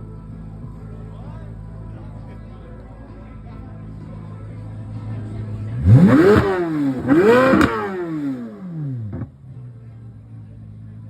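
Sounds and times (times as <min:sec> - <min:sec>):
car engine revving: 0:05.6 - 0:09.4
sharp exhaust crack: 0:05.9 - 0:08.7.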